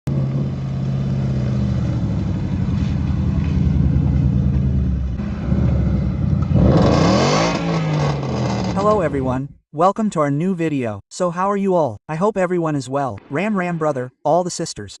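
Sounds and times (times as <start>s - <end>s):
car engine running: 0.1s - 9.4s.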